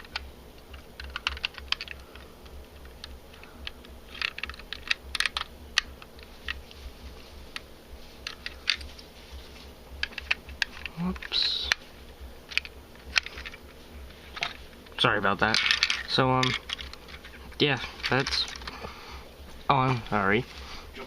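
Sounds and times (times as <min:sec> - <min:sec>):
plastic bricks clicking: 0:00.0 - 0:02.2, 0:02.8 - 0:06.6, 0:15.4 - 0:17.2
faint low hum: 0:00.0 - 0:21.0.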